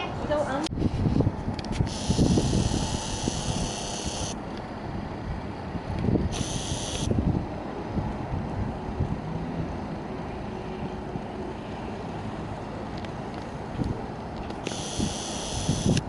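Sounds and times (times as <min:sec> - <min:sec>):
wind buffeting microphone: 0:00.0 - 0:09.9, 0:14.9 - 0:16.0
high hissing: 0:01.9 - 0:04.4.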